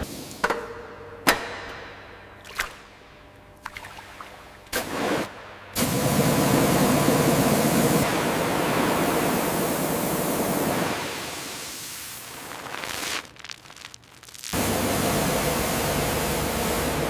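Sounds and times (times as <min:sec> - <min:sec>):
loud rushing hiss: 0:05.8 - 0:17.0.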